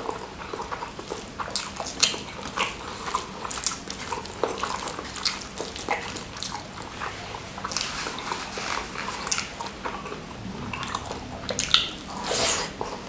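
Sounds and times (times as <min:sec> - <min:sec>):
wet chewing and lip smacking: 0:00.0 - 0:08.3.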